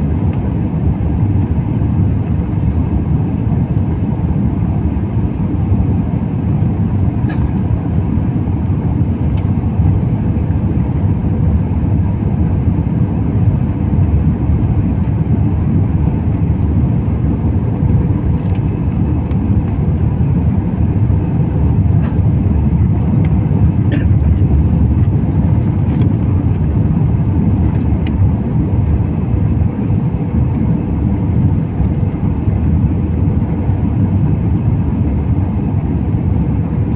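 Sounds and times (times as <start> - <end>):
airliner cabin roar: 0.0 - 36.9.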